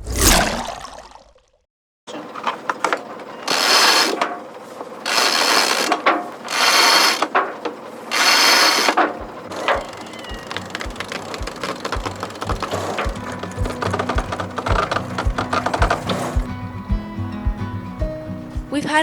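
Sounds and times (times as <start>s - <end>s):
ratchet clicks: 3.5s - 4.2s, 5.1s - 7.4s, 8.1s - 16.4s
rasping ratchet strokes: 3.5s - 4.4s, 5.0s - 16.5s.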